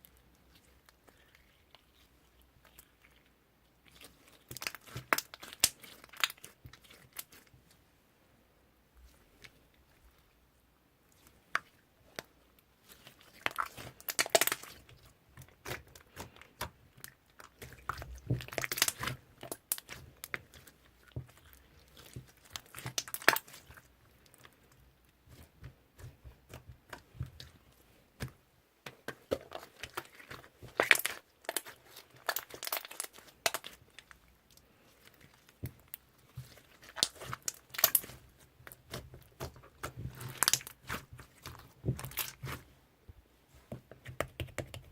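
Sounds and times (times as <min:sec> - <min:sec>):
slime crackling when squeezed: 0:36.6 - 0:38.2.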